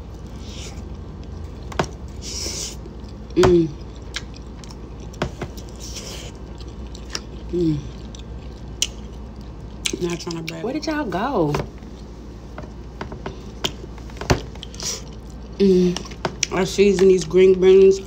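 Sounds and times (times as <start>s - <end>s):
person chewing food: 0.0s - 10.6s, 11.8s - 16.6s
person humming mmm: 2.2s - 3.9s, 7.4s - 8.1s, 15.6s - 16.2s.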